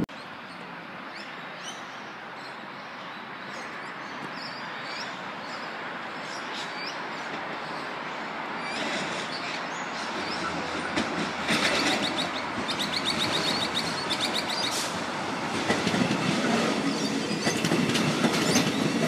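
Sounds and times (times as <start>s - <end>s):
birds chirping: 0.1s - 14.8s
train wheels on rails: 3.5s - 19.0s.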